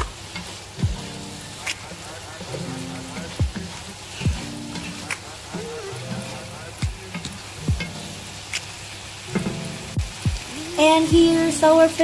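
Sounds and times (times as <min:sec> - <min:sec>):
background music with deep beat: 0:00.0 - 0:08.7, 0:09.3 - 0:10.5
food sizzling in a frying pan: 0:00.0 - 0:12.0.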